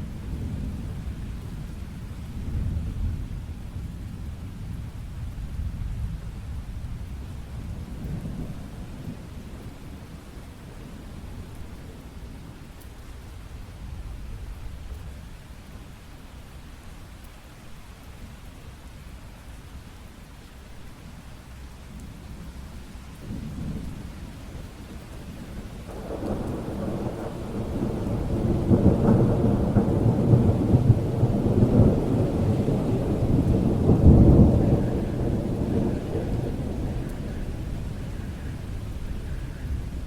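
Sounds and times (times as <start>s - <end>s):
steady rain: 0.0s - 40.0s
thunder rolling: 25.8s - 40.0s.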